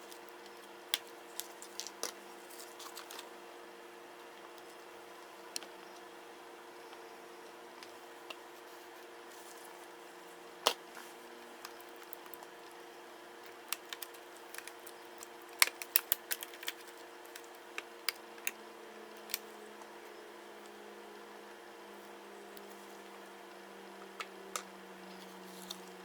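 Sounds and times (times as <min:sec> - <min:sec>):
small tools clicking on plastic: 0:13.4 - 0:18.6.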